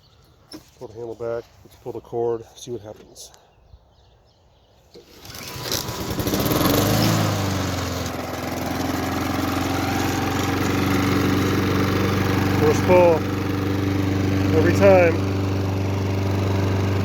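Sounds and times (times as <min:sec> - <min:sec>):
lawn mower engine pull-started: 0:04.9 - 0:17.0.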